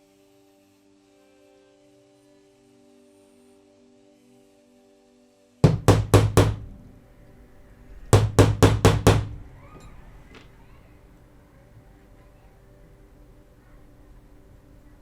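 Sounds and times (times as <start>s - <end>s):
sharp ringing knocks: 5.6s - 6.9s, 8.2s - 9.5s.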